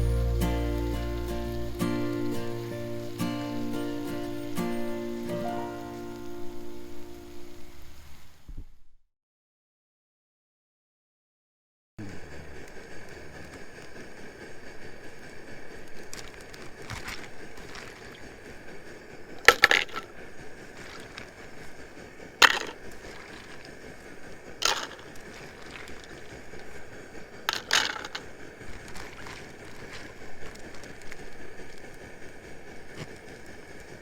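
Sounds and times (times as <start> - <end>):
hard objects clinking together: 19.4 - 20.1, 22.4 - 23.7, 24.6 - 26.4, 27.5 - 30.1.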